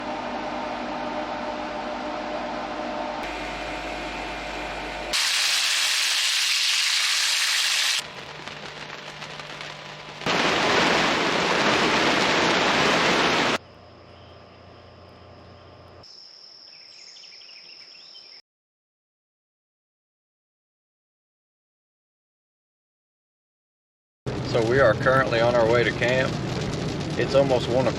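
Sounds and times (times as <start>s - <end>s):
mechanical hum: 0.0s - 16.2s, 24.3s - 27.9s
loud rain hiss: 5.1s - 13.6s, 24.5s - 27.9s.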